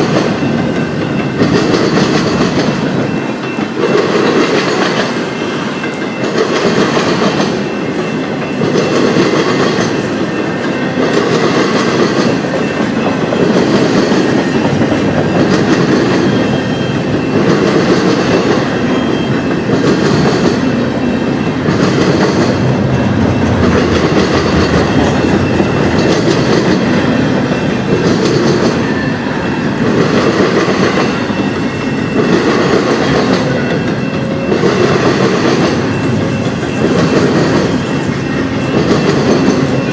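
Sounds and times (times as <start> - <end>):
train wheels clacking over rail joints: 0.0 - 39.9.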